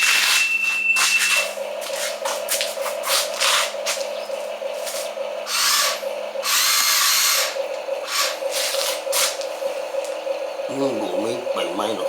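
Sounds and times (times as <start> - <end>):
toy electric motors whirring: 0.0 - 4.1, 4.8 - 9.5
steady pulsing hum: 0.0 - 12.0.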